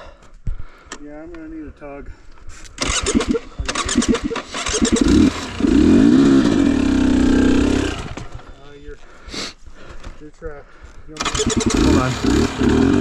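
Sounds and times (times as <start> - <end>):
dirt bike engine revving: 2.8 - 8.5, 11.2 - 13.0.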